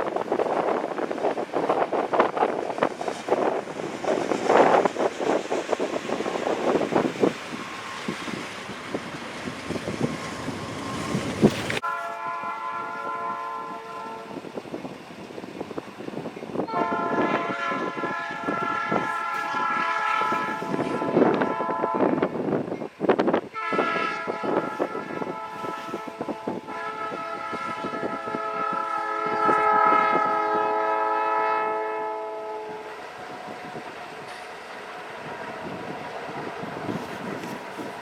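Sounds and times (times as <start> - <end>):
wind buffeting microphone: 0.0 - 11.8, 12.4 - 38.0
locomotive air horn chord: 11.8 - 14.4, 16.7 - 22.4, 23.6 - 33.3.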